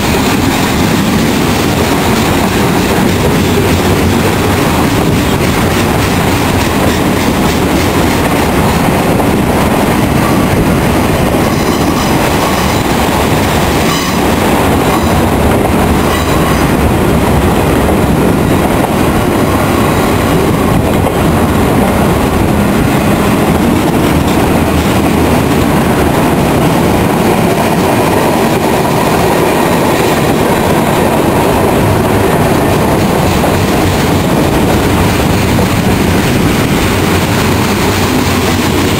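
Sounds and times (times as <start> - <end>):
freight train wheels on rails: 0.0 - 38.9.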